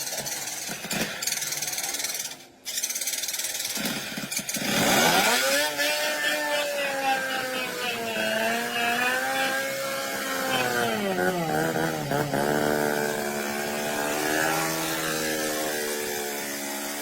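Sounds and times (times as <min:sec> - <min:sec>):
steady machine noise: 0:00.0 - 0:17.0
motor spinning up: 0:03.8 - 0:17.0.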